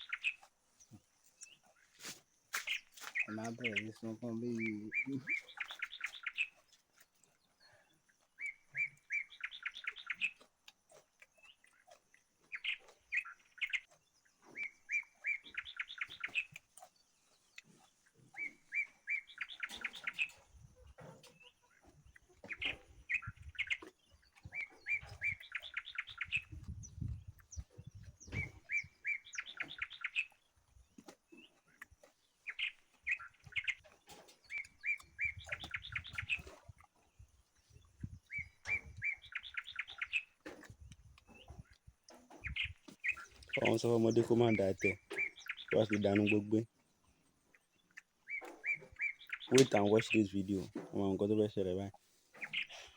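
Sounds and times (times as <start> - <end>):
bird singing: 0.0 - 10.5, 11.2 - 52.9.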